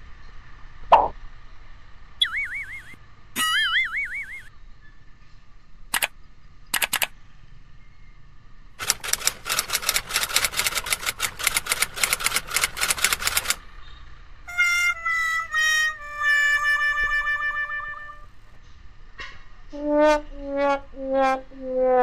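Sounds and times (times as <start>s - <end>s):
mouse clicks: 6.8s - 7.1s.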